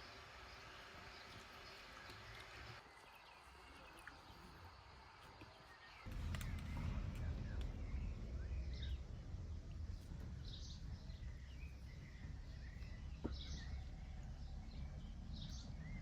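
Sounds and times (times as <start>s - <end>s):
small birds chirping: 0.0s - 16.0s
low outdoor rumble: 5.9s - 16.0s.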